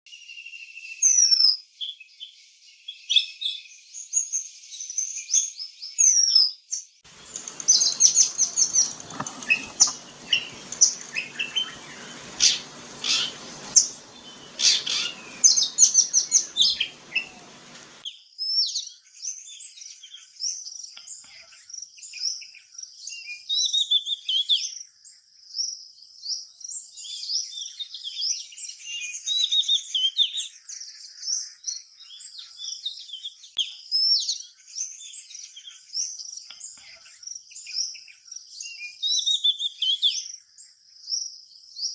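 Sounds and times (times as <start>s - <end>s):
low hum with rushing noise: 7.1s - 18.0s
birds chirping and whistling: 7.1s - 18.1s.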